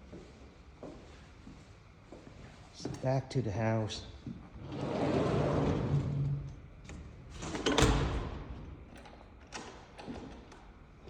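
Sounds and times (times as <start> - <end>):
door sliding along track: 4.6 - 6.6.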